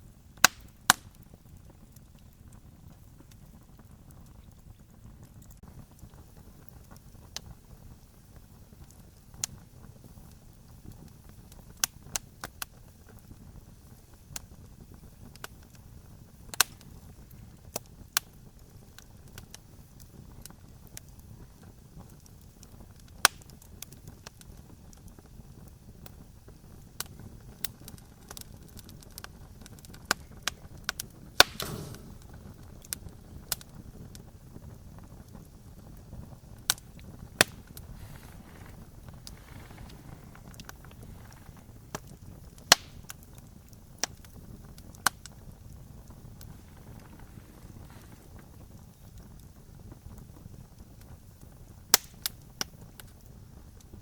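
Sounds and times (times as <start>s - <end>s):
campfire crackling: 0.0s - 54.0s
low steady rumble: 31.2s - 33.4s, 35.0s - 49.1s
short hiss: 31.4s - 32.4s.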